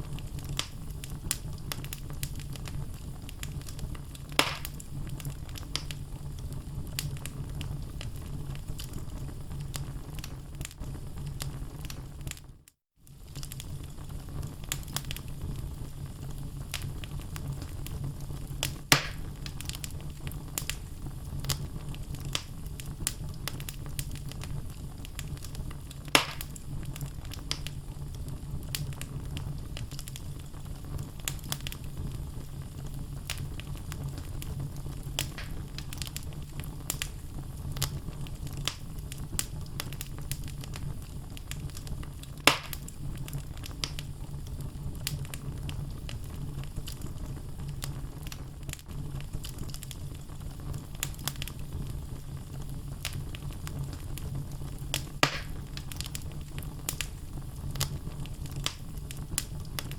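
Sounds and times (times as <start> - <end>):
fire crackling: 0.0 - 59.9
low rumble of fire: 0.0 - 59.9
sharp wood pops: 4.4 - 4.7, 18.9 - 19.3, 26.2 - 26.5, 35.3 - 35.6, 42.5 - 42.8, 55.2 - 55.6.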